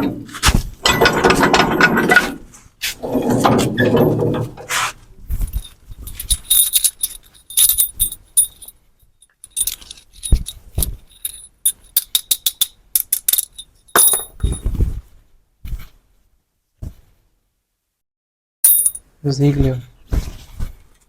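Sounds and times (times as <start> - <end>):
metal pieces clinking: 5.5 - 14.6, 18.7 - 19.0.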